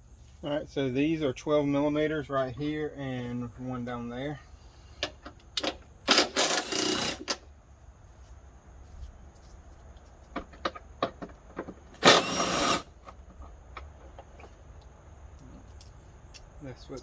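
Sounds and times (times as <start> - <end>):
power tool spinning out bolts: 5.6 - 7.4, 11.6 - 13.3.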